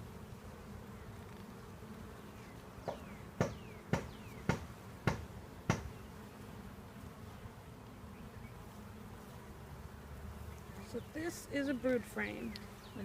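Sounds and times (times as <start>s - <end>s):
bees humming: 0.0s - 13.0s
sharp knocks: 2.8s - 5.9s.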